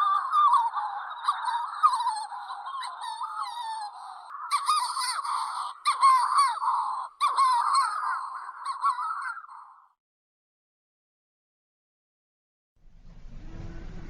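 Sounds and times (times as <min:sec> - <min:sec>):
petrels calling: 0:00.0 - 0:09.8.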